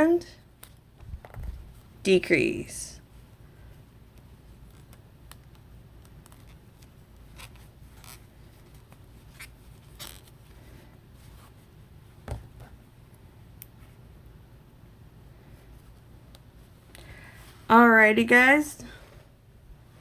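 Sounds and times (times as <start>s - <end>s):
crochet hook scratching yarn: 4.4s - 10.4s.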